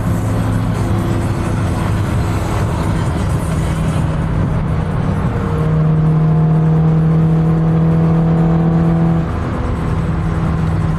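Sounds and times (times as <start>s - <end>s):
car engine and road noise: 0.0s - 10.9s.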